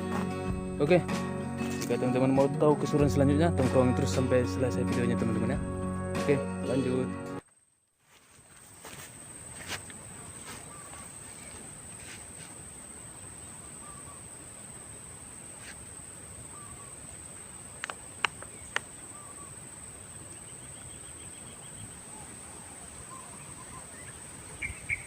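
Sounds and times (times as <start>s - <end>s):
short bird calls: 20.3s - 25.0s.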